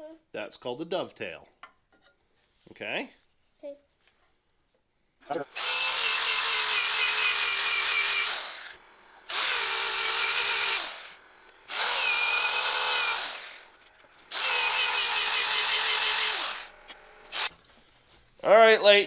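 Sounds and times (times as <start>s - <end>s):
electric drill motor whining: 5.5s - 17.5s.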